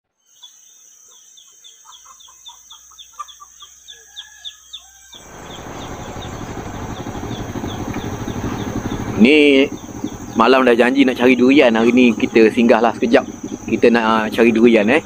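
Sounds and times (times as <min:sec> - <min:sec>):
high insect drone: 0:00.4 - 0:15.0
rushing noise: 0:05.2 - 0:14.4
bird chirping rapidly: 0:05.2 - 0:15.0.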